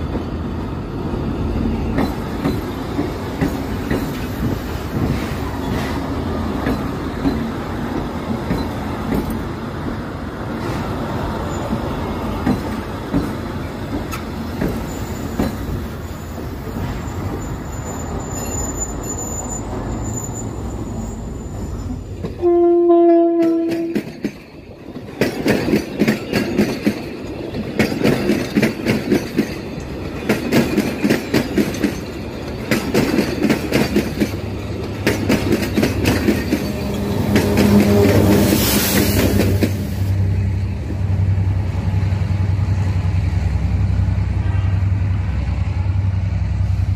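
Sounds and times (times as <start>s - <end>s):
train rolling rumble: 0.0s - 46.9s
high wheel squeal: 14.7s - 22.3s, 35.7s - 40.1s
train horn blast: 22.4s - 24.0s, 36.6s - 40.1s, 44.4s - 45.2s
wheels clattering over rail joints: 23.3s - 38.4s.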